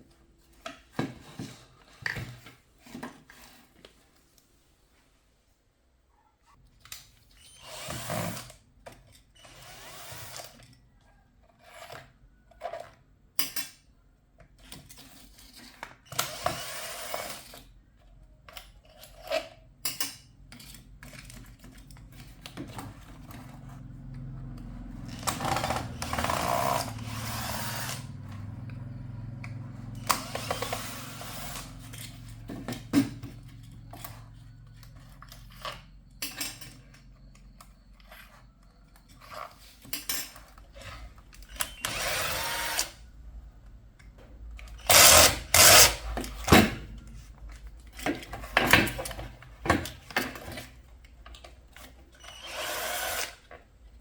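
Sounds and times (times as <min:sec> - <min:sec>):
small motor humming: 0:25.1 - 0:32.2, 0:41.7 - 0:43.0, 0:52.2 - 0:53.4.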